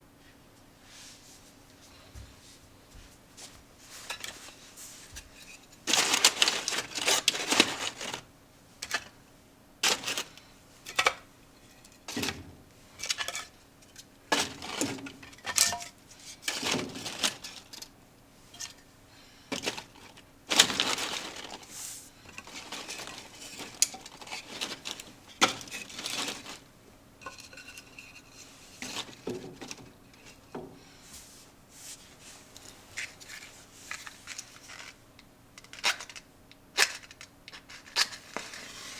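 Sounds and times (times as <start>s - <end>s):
metal and wood clattering: 5.4s - 9.1s, 9.8s - 17.9s, 19.5s - 30.8s.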